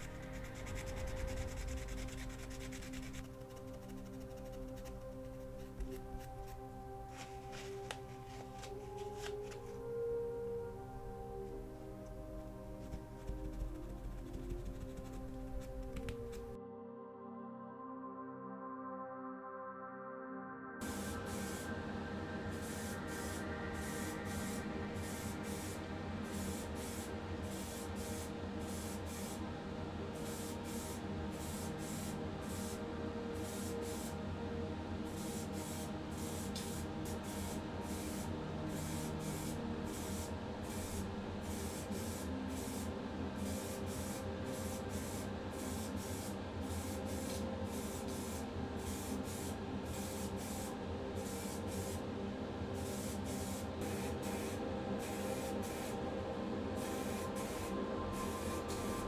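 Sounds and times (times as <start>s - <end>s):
spray paint hissing: 0.0s - 5.0s, 20.8s - 21.8s, 22.4s - 29.4s, 30.2s - 32.8s, 33.4s - 34.2s, 35.1s - 52.0s, 52.8s - 56.0s, 56.8s - 59.0s
low steady hum: 0.0s - 16.6s.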